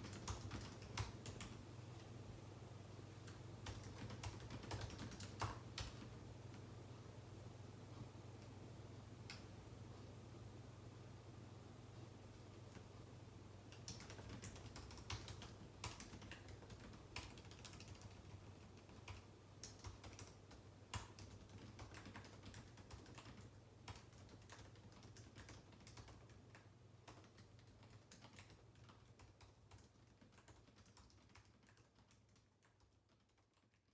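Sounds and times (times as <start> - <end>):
typing on computer keyboard: 0.0 - 1.6, 3.2 - 6.2, 13.7 - 33.9
steady low hum: 0.0 - 30.0.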